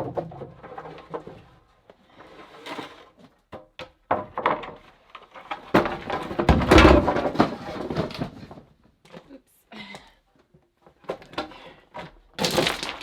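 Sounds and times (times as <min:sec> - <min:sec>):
objects knocking and thudding: 0:00.0 - 0:01.9, 0:03.2 - 0:09.3, 0:10.9 - 0:13.0.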